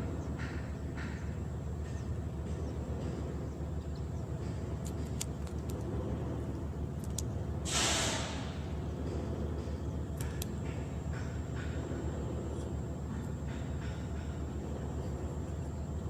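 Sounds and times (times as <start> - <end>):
low engine rumble: 0.0 - 16.0
short hissing rush: 7.6 - 8.8.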